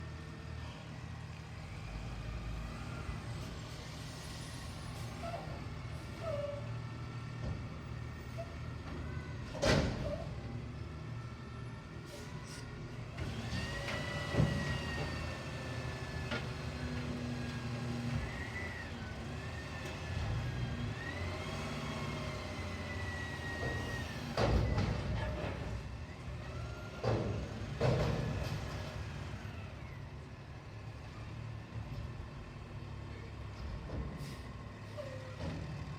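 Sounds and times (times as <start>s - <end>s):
garbage truck running: 0.0s - 35.9s.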